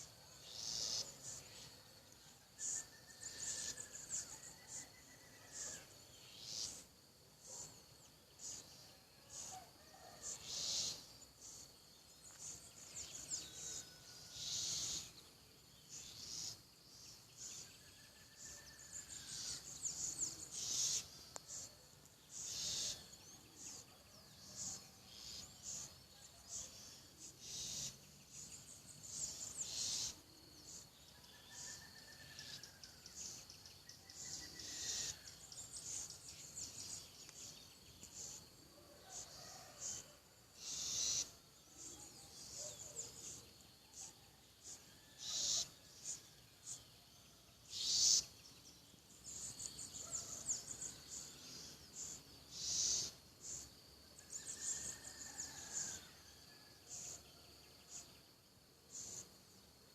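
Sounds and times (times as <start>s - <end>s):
wren harsh hissing calls: 0.5s - 1.4s, 10.2s - 11.6s, 13.6s - 15.1s, 19.3s - 21.7s, 22.3s - 23.0s, 27.4s - 27.9s, 29.1s - 30.8s, 34.1s - 36.0s, 40.6s - 41.3s, 44.6s - 46.8s, 47.7s - 48.3s, 52.0s - 53.6s.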